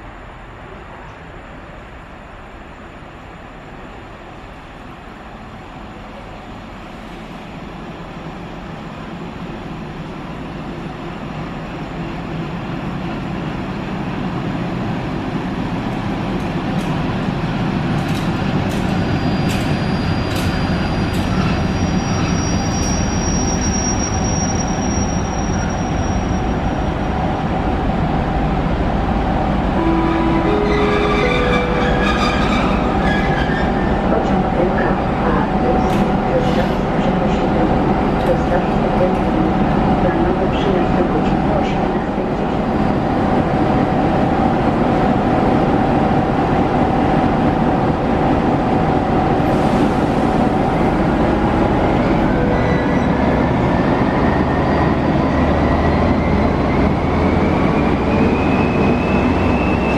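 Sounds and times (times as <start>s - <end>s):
high-pitched brake squeal: 18.9s - 26.9s, 29.8s - 34.1s, 52.3s - 59.9s
rising sequence of tones: 29.8s - 34.0s.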